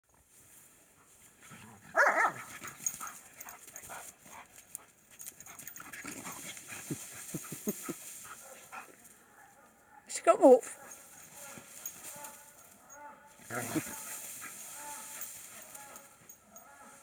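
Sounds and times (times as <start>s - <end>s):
dog barking loudly: 1.9s - 2.5s.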